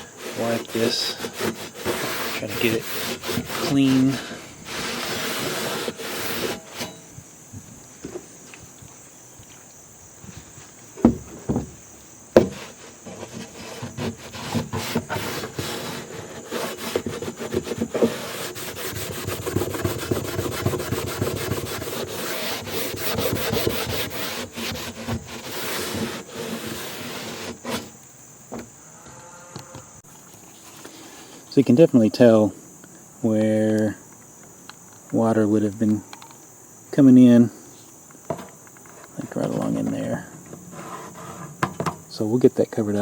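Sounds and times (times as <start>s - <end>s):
rag rubbing on metal roof: 0.0s - 7.1s, 12.4s - 28.0s, 40.6s - 41.9s
knocks: 11.0s - 12.6s.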